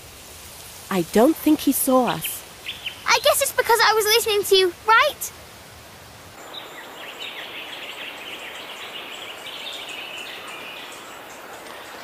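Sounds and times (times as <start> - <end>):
steady outdoor hiss: 0.0 - 12.0
birds chirping: 2.0 - 5.3, 6.4 - 12.0.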